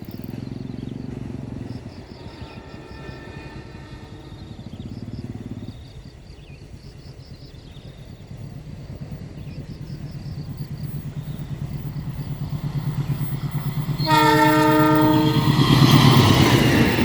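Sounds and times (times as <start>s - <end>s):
diesel locomotive engine rumbling: 0.0s - 17.0s
locomotive air horn: 2.3s - 4.9s, 14.0s - 16.0s.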